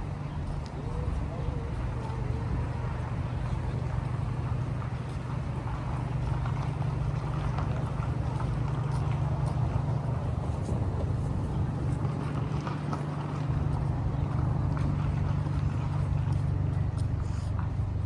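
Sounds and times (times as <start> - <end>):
motor vehicle engine drone: 0.0 - 18.0
traffic noise: 0.0 - 18.0.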